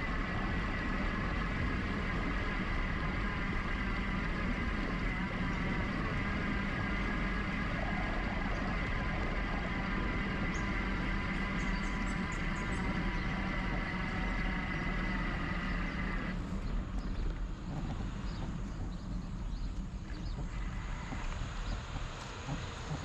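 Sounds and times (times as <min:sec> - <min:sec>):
road noise: 0:00.0 - 0:23.0
steady high whine: 0:00.0 - 0:23.0
wind rumble: 0:00.0 - 0:23.0.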